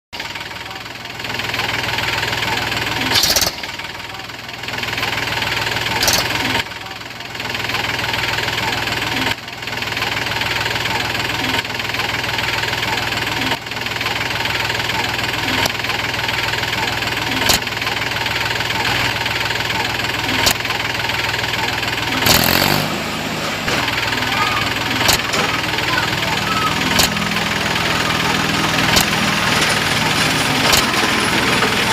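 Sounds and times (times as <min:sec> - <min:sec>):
small engine running: 0:00.2 - 0:31.9
sharp clicks: 0:06.0 - 0:06.4, 0:17.4 - 0:17.7, 0:20.4 - 0:20.7, 0:24.9 - 0:27.6, 0:28.4 - 0:31.1.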